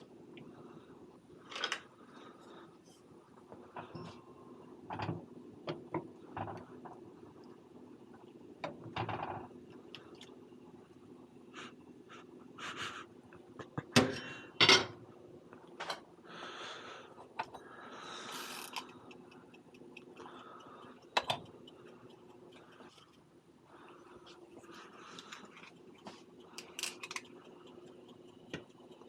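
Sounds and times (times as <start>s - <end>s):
steady low hum: 0.0s - 29.0s
cooking hiss: 16.2s - 22.9s.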